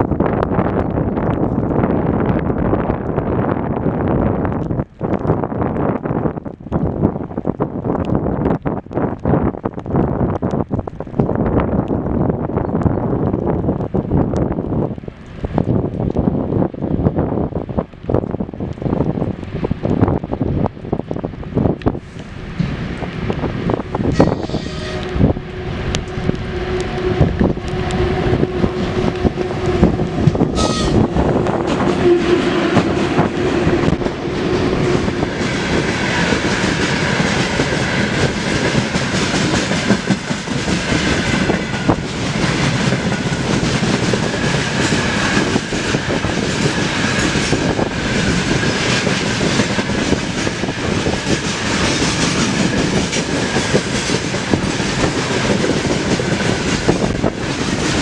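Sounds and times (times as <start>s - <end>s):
rumble of wagons: 0.0s - 58.0s
locomotive hum: 18.6s - 58.0s.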